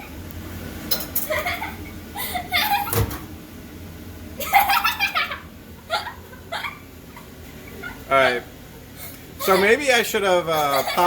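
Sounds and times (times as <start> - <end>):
laughter: 1.3 - 3.1, 4.4 - 8.1, 9.4 - 9.8, 10.5 - 11.0.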